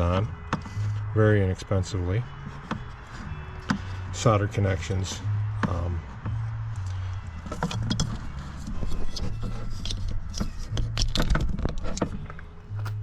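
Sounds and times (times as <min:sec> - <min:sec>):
plastic and metal clicks: 0:09.8 - 0:13.0.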